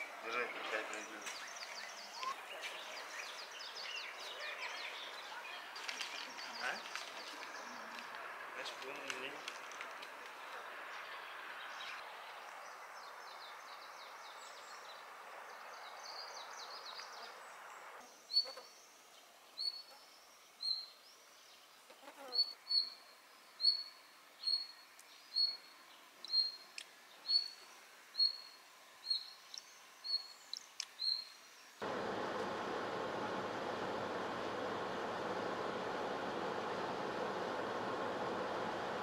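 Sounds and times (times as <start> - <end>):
steady rushing noise: 31.8 - 39.0.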